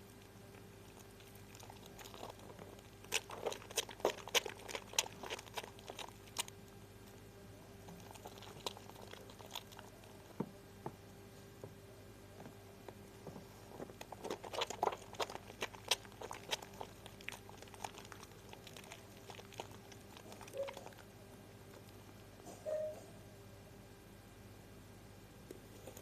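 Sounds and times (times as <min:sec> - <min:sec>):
soap lather crackling and squishing: 0:00.0 - 0:10.5, 0:12.9 - 0:22.1.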